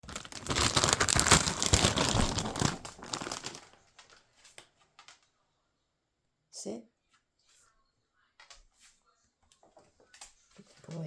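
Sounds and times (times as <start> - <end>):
plastic packaging crinkling: 0.0 - 4.2.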